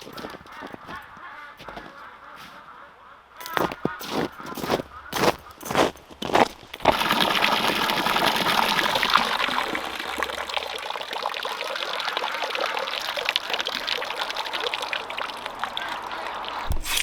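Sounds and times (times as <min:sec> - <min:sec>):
water gushing from a hose: 0:06.8 - 0:17.0.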